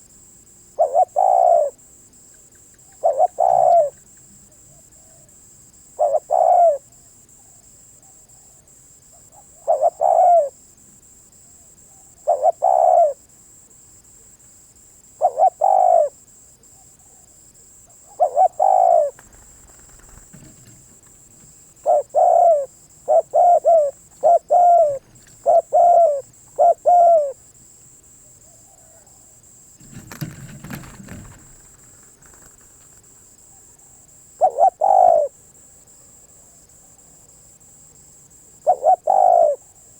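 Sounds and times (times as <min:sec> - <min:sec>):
dove cooing: 0:00.8 - 0:01.8, 0:02.9 - 0:04.1, 0:06.0 - 0:06.9, 0:09.2 - 0:10.6, 0:11.9 - 0:13.2, 0:15.2 - 0:16.2, 0:18.0 - 0:27.4, 0:29.8 - 0:35.4, 0:38.6 - 0:39.8
rustle: 0:15.7 - 0:37.6.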